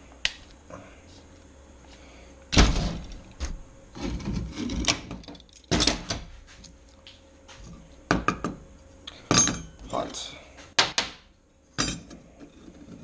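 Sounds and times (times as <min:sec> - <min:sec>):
metal tools clattering: 0:09.3 - 0:09.8.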